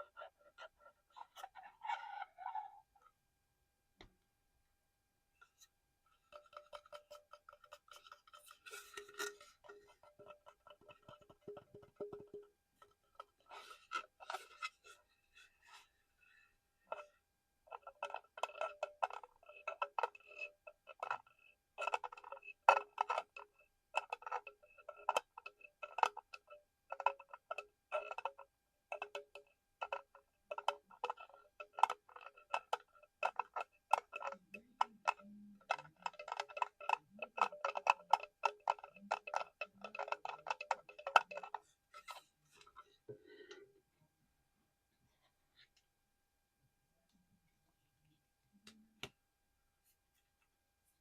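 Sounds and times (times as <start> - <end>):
rapid tapping on hollow object: 17.7 - 41.7.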